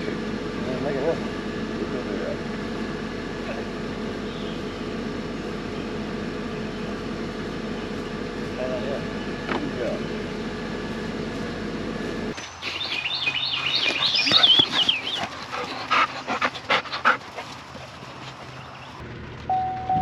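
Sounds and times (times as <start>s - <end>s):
steady hum: 0.0s - 20.0s
dog whining and yipping: 12.7s - 16.0s.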